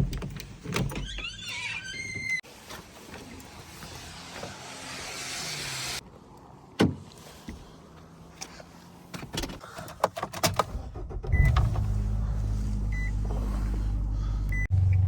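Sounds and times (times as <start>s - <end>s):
car engine starting and idling: 9.6s - 15.0s.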